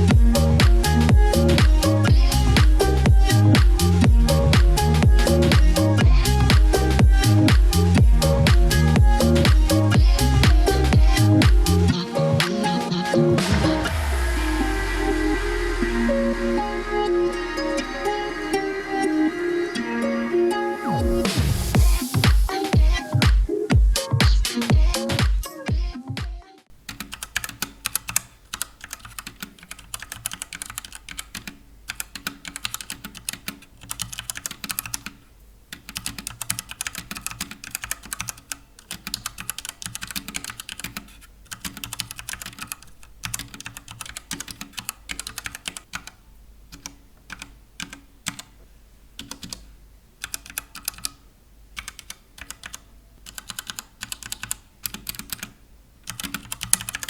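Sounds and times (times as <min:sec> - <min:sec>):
mechanical keyboard typing: 0:26.9 - 0:48.5, 0:49.2 - 0:49.6, 0:50.2 - 0:51.2, 0:51.8 - 0:57.0.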